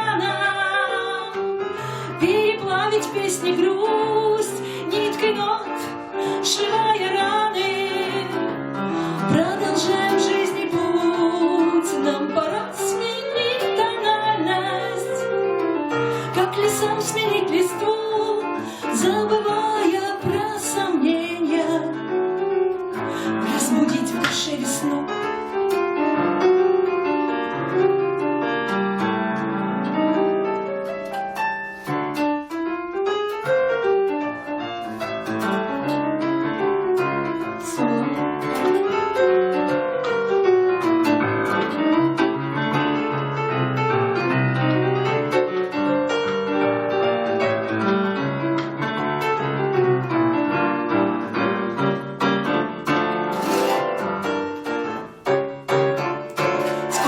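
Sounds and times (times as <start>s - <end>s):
piano melody over chords: 0.0s - 57.0s.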